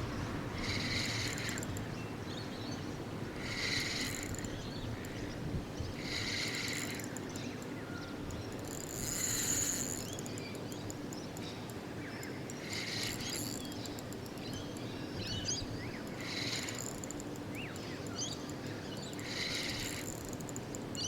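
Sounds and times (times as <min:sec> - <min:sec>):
low background rumble: 0:00.0 - 0:03.6.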